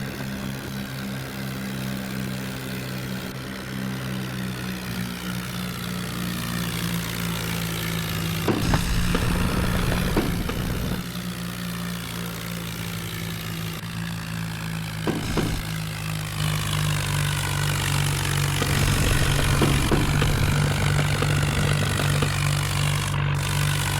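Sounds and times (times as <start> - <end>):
tractor engine running: 0.0 - 23.9
short knocks: 15.1 - 15.8.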